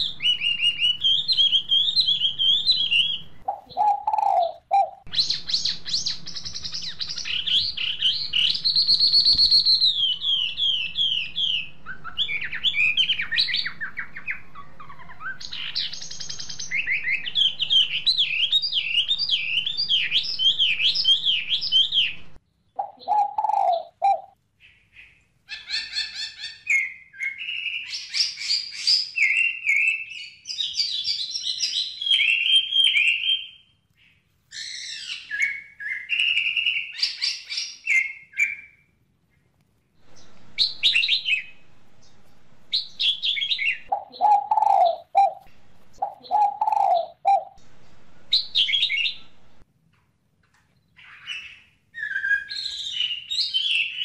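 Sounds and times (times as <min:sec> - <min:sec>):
lower bird call: 0:00.0 - 0:29.9, 0:40.0 - 0:49.6
small birds chirping and trilling: 0:00.0 - 0:38.8, 0:40.0 - 0:49.6, 0:50.5 - 0:54.0.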